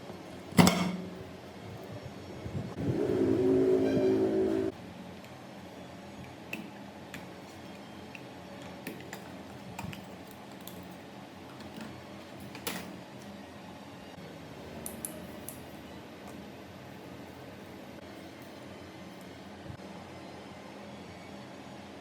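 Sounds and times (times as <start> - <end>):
low steady hum: 0.0 - 4.9.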